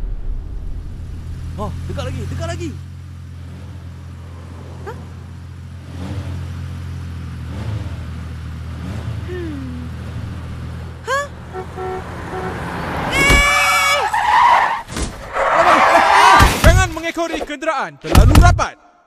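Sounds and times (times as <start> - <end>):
car engine drone from inside cabin: 0.0 - 13.9.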